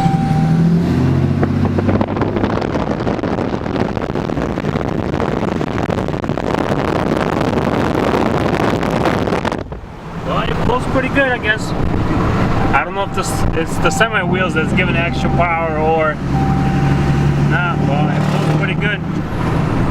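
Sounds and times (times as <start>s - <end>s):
pickup engine note: 0.0s - 2.6s, 12.1s - 18.8s
road and wind noise: 0.0s - 19.9s.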